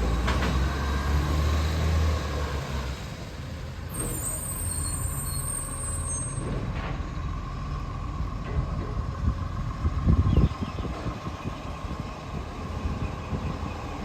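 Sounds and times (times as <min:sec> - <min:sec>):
garbage truck engine running: 0:05.8 - 0:14.0.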